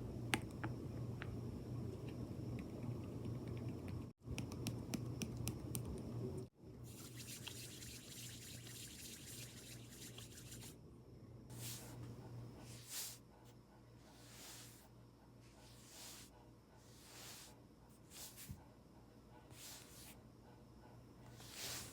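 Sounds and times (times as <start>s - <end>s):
low electrical hum: 0.0s - 21.9s
makeup handling ticks and clicks: 3.3s - 6.1s.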